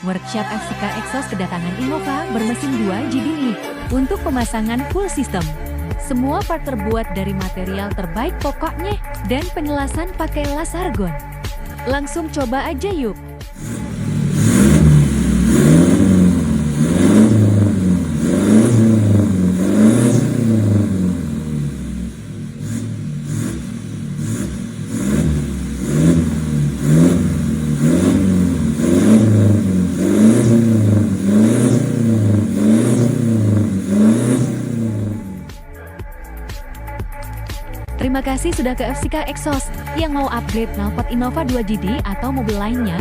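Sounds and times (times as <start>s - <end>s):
diesel engine revving: 13.6s - 35.6s.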